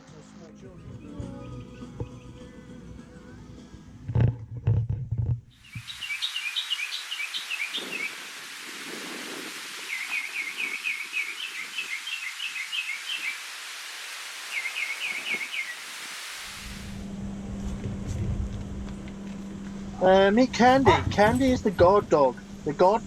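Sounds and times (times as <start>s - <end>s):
songbird chirping: 0.9s - 2.7s, 5.6s - 8.4s, 9.7s - 13.6s, 14.4s - 15.8s
outdoor ambience hiss: 5.5s - 23.0s.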